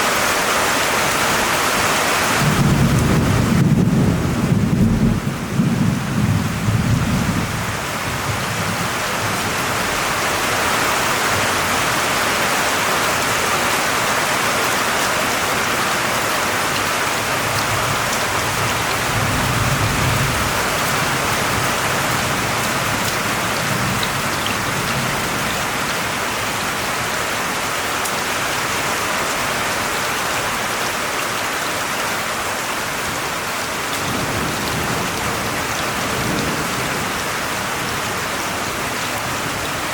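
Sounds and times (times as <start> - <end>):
steady rain falling: 0.0 - 39.9
thunder rumbling: 2.4 - 9.6, 17.3 - 26.9, 34.0 - 39.7.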